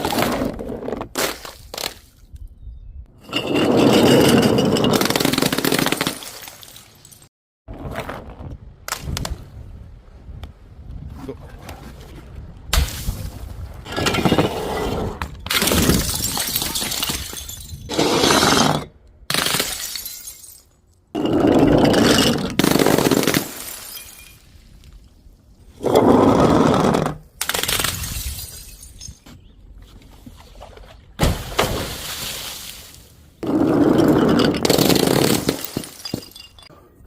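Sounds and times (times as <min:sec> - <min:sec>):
glass bottles smashing: 0:03.2 - 0:07.3, 0:15.5 - 0:20.7, 0:21.4 - 0:24.5, 0:27.7 - 0:29.2, 0:33.9 - 0:36.7
glass shards tinkling: 0:35.7 - 0:36.7.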